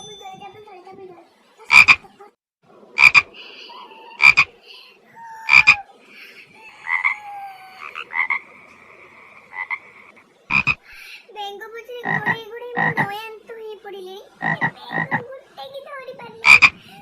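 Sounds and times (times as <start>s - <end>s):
frog double croaks: 1.7s - 2.0s, 3.0s - 4.6s, 5.5s - 5.8s, 6.7s - 10.9s, 12.0s - 13.1s, 14.4s - 15.2s, 16.4s - 16.8s
faint chorus of frogs: 1.7s - 2.1s, 3.0s - 11.2s, 12.0s - 13.1s, 14.4s - 15.2s, 16.4s - 17.0s.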